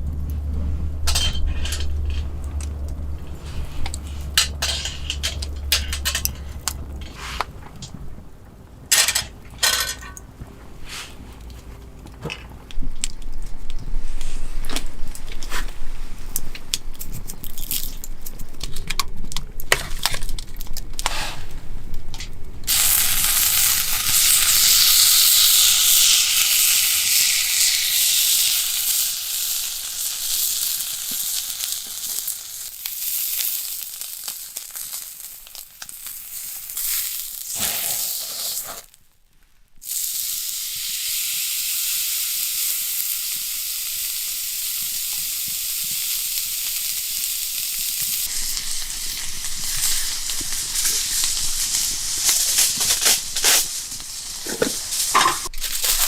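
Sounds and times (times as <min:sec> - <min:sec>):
cookware clinking and knocking: 0:09.0 - 0:10.2, 0:55.2 - 0:55.5
beef sizzling in a hot pan: 0:22.7 - 0:39.0, 0:39.8 - 0:56.0.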